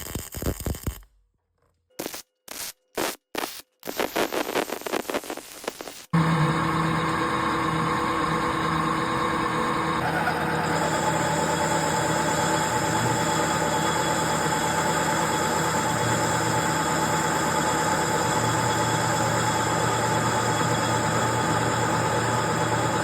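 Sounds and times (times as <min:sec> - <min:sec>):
metal lathe cutting: 0:06.2 - 0:23.0.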